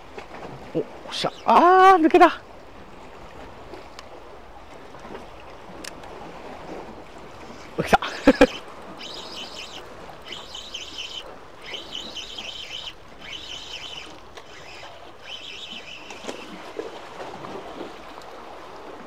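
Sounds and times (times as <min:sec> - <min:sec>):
spinning reel whirring: 0:08.2 - 0:16.9.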